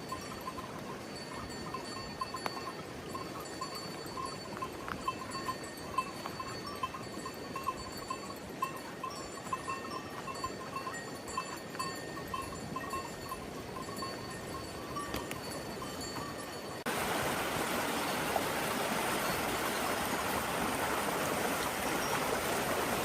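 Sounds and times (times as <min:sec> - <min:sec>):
livestock bells clanking: 0:00.0 - 0:16.9
rushing water: 0:00.0 - 0:23.0.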